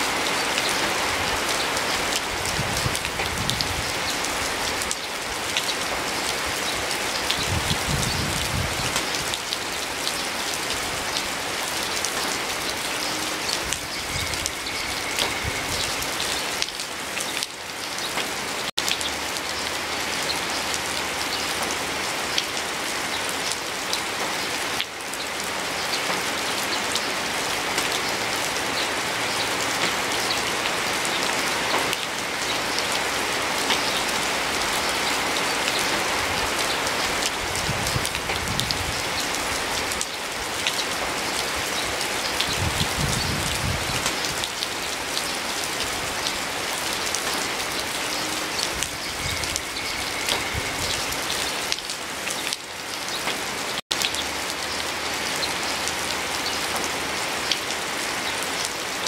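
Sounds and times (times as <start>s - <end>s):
steady rain falling: 0.0s - 59.0s
raindrops ticking: 0.2s - 43.2s.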